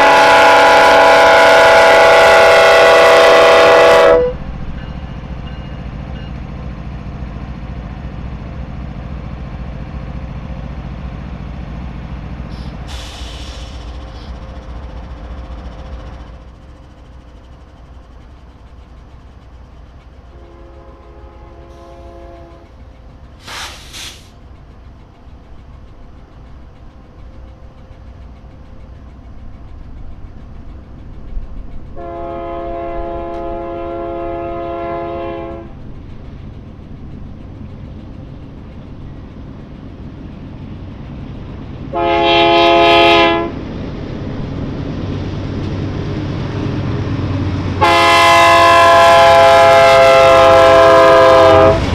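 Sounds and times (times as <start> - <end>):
locomotive horn blast: 0.0 - 4.5, 20.3 - 22.7, 32.0 - 35.8, 41.9 - 43.6, 47.8 - 51.9
train rumbling on rails: 0.0 - 51.9
loud hiss: 12.4 - 14.6, 23.4 - 24.5.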